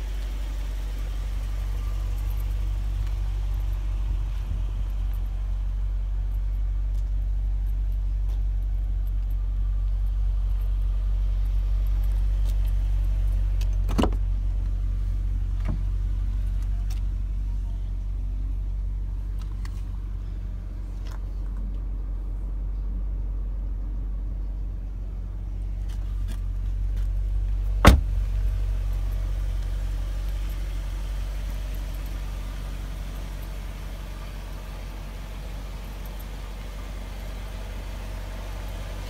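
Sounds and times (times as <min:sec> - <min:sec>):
car engine idling: 0:00.0 - 0:39.0
car door thump: 0:13.8 - 0:14.2, 0:27.8 - 0:28.3.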